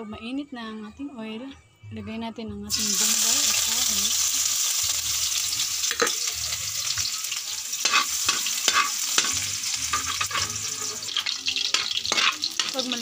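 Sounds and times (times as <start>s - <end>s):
onion sizzling in oil: 2.7s - 13.0s
spatula scraping and clacking on pan: 5.8s - 6.3s, 7.8s - 13.0s.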